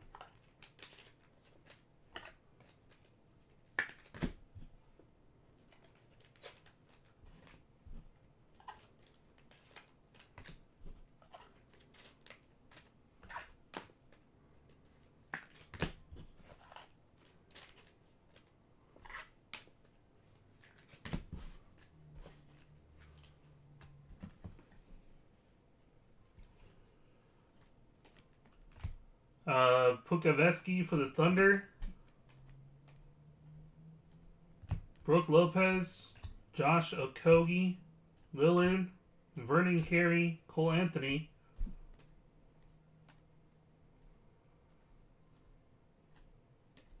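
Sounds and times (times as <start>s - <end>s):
trading cards flipping: 0.0s - 4.4s, 5.6s - 7.6s, 8.6s - 24.8s, 27.6s - 29.0s, 38.4s - 40.0s.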